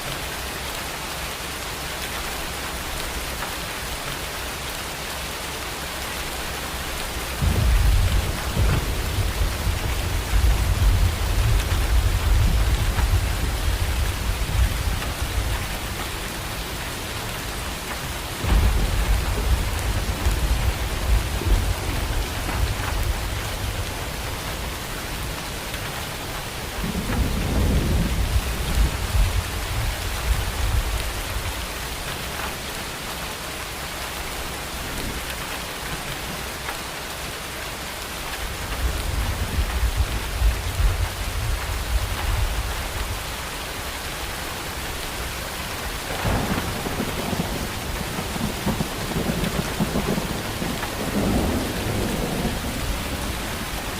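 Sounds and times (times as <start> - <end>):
steady rain: 0.0 - 53.9
thunder rolling: 7.4 - 16.0, 18.4 - 24.2, 46.0 - 53.9.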